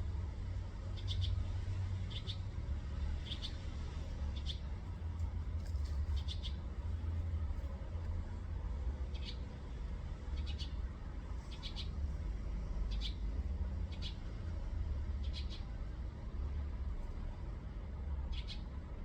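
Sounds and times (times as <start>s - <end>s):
small bird chirping: 1.0s - 2.5s, 3.2s - 4.7s, 5.8s - 6.7s, 9.1s - 9.5s, 10.4s - 10.8s, 11.4s - 12.0s, 12.9s - 14.3s, 15.2s - 15.8s, 18.3s - 18.7s.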